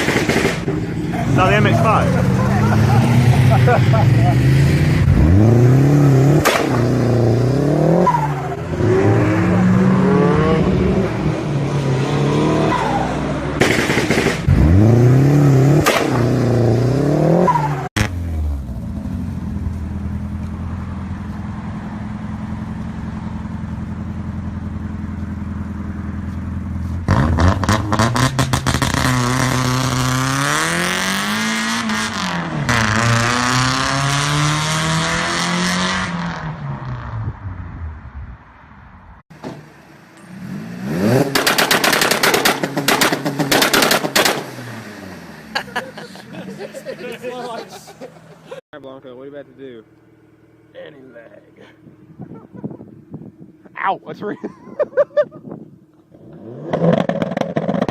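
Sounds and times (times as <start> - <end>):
car engine revving: 0.0 - 37.2, 39.8 - 46.7, 56.1 - 57.9
exhaust pops and crackles: 6.4 - 6.9, 13.6 - 14.6, 26.2 - 30.2, 41.2 - 44.5, 56.0 - 57.9.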